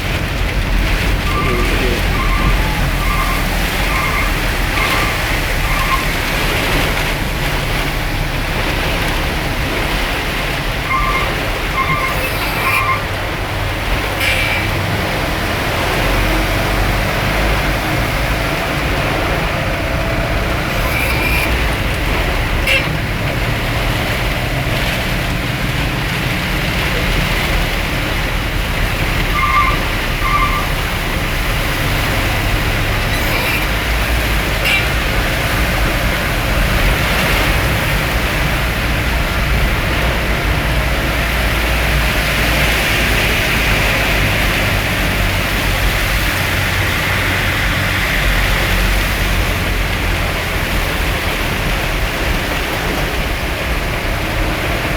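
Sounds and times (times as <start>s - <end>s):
heavy rain falling: 0.0s - 54.9s
road vehicle rumble: 0.0s - 54.9s.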